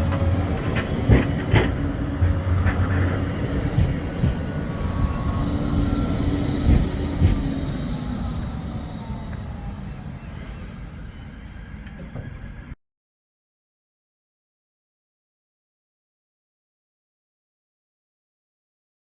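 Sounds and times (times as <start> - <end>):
faint falling whine: 0.0 - 12.8
tram running on track: 0.0 - 12.8
wheels clunking over rail joints: 0.0 - 12.8.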